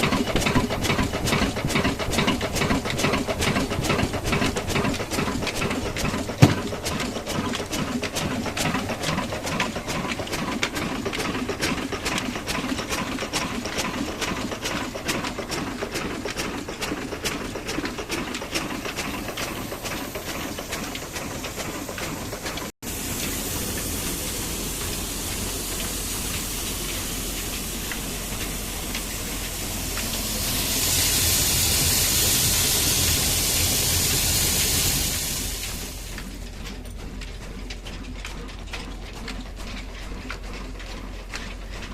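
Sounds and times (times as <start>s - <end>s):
mill machinery clattering: 0.0s - 41.9s
loud hiss: 19.0s - 36.1s.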